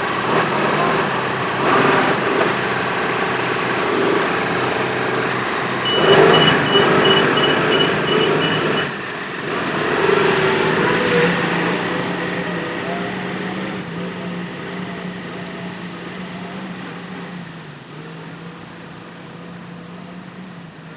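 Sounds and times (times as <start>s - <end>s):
tractor diesel engine running: 0.0s - 16.8s
high beeps: 5.8s - 9.0s.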